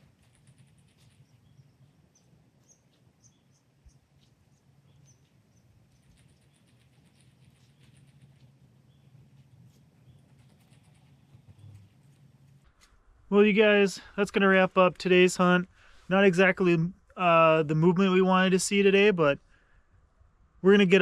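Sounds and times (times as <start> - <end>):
ticking bird calls: 0.0 - 12.2
low steady hum: 0.0 - 21.0.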